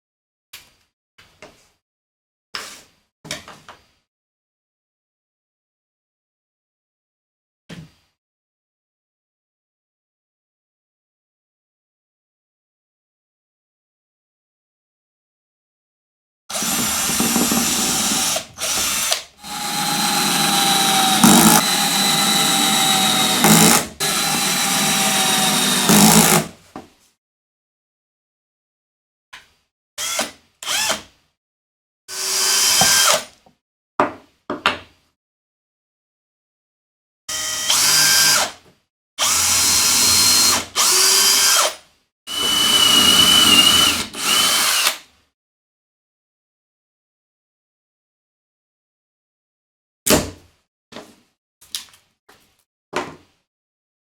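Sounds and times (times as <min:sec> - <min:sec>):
electric drill whining: 0:16.5 - 0:26.5, 0:37.3 - 0:38.5, 0:39.2 - 0:41.7, 0:42.3 - 0:44.9.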